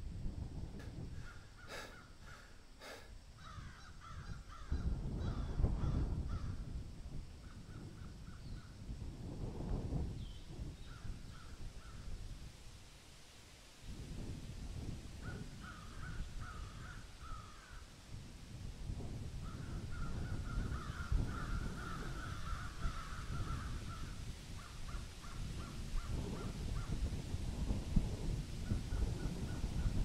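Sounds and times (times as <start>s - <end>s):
birds calling: 0.8s - 5.5s.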